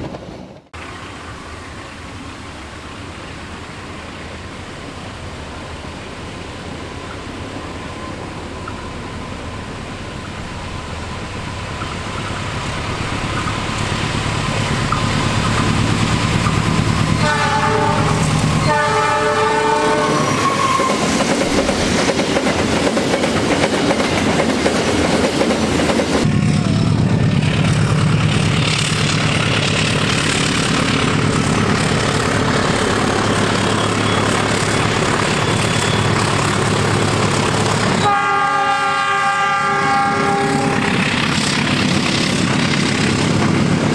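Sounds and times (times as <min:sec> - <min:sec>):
diesel locomotive engine: 0:00.0 - 0:43.9
wheels clattering over rails: 0:10.2 - 0:19.4
train horn blasts: 0:17.0 - 0:21.0, 0:37.9 - 0:41.0.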